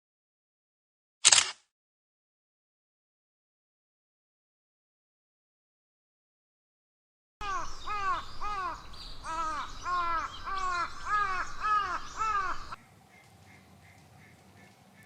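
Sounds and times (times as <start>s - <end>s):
crow cawing: 7.4s - 15.0s.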